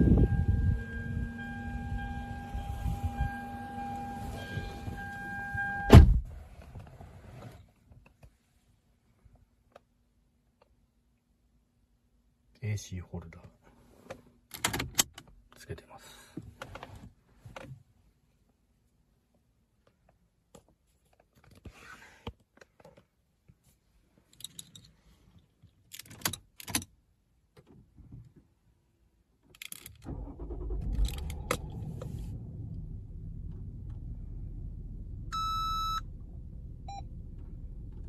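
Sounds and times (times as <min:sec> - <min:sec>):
car engine starting and idling: 0:00.0 - 0:07.2, 0:29.6 - 0:38.0
electronic beep: 0:35.3 - 0:36.0.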